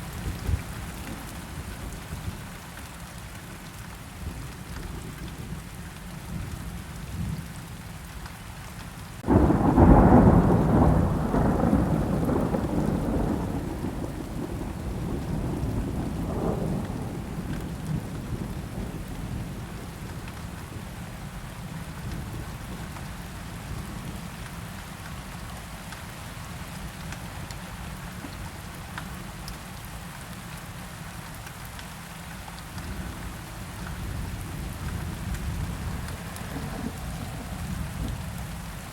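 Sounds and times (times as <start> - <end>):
steady rain: 0.0 - 38.9
thunderclap rumbling: 9.2 - 20.9, 32.8 - 38.9.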